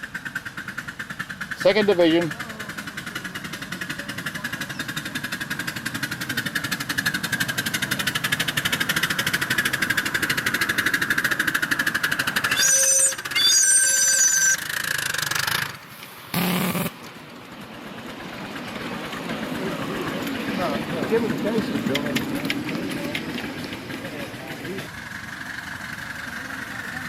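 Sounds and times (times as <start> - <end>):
miniature locomotive running: 0.0 - 27.0
high-pitched whistle toots: 12.5 - 14.6.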